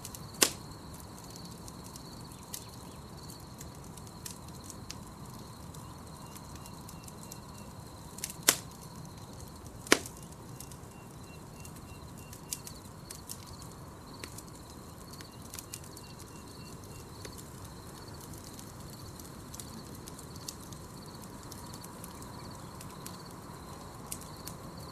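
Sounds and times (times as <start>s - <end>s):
campfire crackling: 0.0s - 24.9s
insects trilling: 0.0s - 24.9s.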